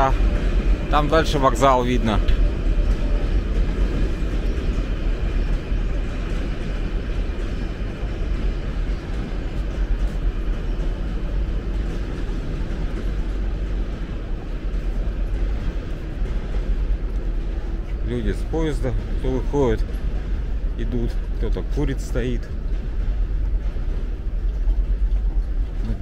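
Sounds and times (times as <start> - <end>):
passenger train rumbling: 0.0 - 26.0.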